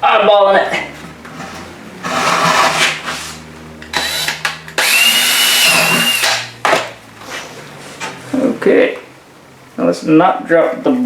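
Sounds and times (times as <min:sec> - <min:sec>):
power drill whining: 0:03.8 - 0:06.5.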